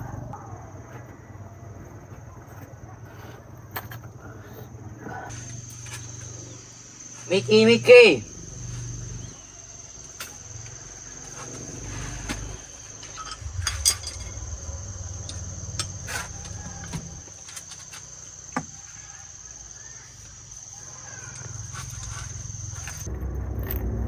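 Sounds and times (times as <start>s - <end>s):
high-pitched insect drone: 5.3s - 24.0s
low rumble: 12.1s - 17.2s, 23.0s - 24.0s.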